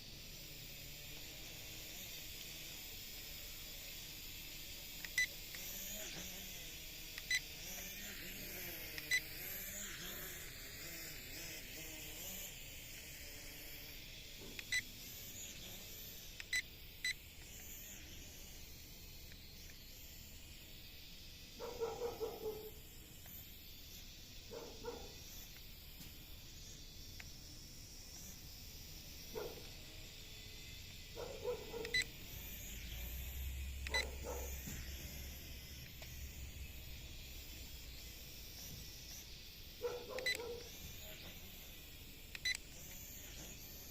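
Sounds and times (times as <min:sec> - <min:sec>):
dog barking: 0:21.6 - 0:22.7, 0:24.5 - 0:25.2, 0:29.4 - 0:29.7, 0:31.2 - 0:32.0, 0:33.9 - 0:34.6, 0:39.8 - 0:40.7.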